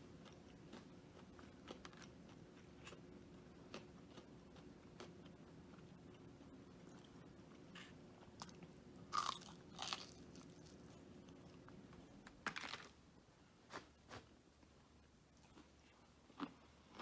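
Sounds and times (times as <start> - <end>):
faint steady hum: 0.0 - 17.0
crunching fried food: 8.3 - 11.6.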